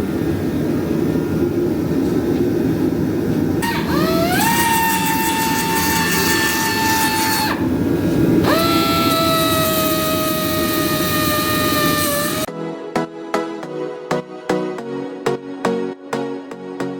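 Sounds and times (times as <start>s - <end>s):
power tool motor whining: 3.6s - 7.7s, 8.4s - 12.5s
hiss: 3.6s - 12.5s.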